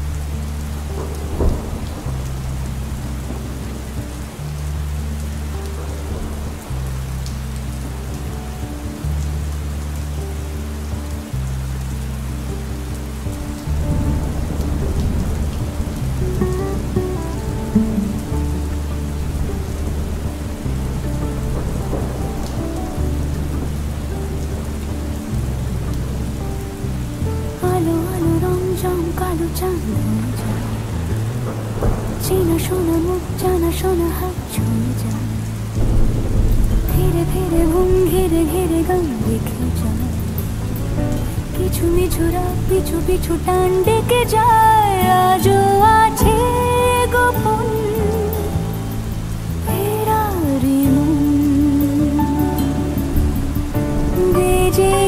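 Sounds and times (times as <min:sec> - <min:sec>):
low thunder rumble: 0:00.0 - 0:55.0
rain hissing: 0:00.0 - 0:55.0
soft music with low held notes: 0:00.0 - 0:55.0
sharp thunder crack: 0:00.9 - 0:04.1, 0:13.7 - 0:27.5, 0:30.0 - 0:34.0, 0:35.8 - 0:43.2.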